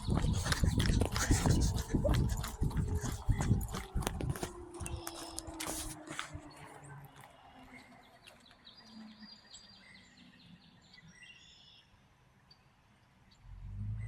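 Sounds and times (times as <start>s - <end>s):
low rumble: 0.0s - 5.5s
birds chirping: 0.0s - 12.6s.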